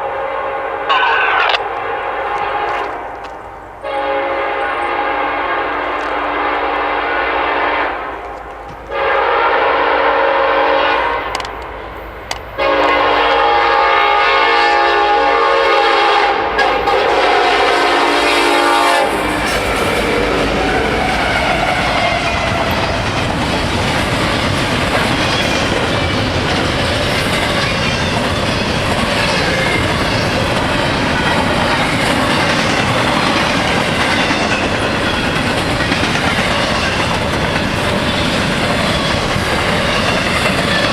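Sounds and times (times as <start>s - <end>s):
locomotive air horn blasts: 0.0s - 3.2s, 3.8s - 11.4s, 12.6s - 22.8s
train wheels rumbling on rails: 0.8s - 40.9s
clickety-clack of train cars: 0.9s - 10.1s, 11.0s - 40.9s.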